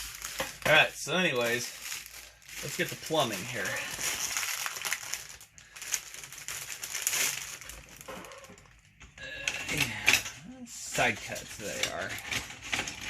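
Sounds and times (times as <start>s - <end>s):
tools rustling and clattering: 9.5s - 13.0s.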